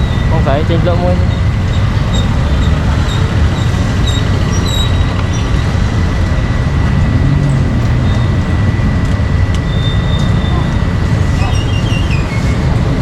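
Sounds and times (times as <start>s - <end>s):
passing traffic rumble: 0.0s - 13.0s
street market din: 0.0s - 13.0s.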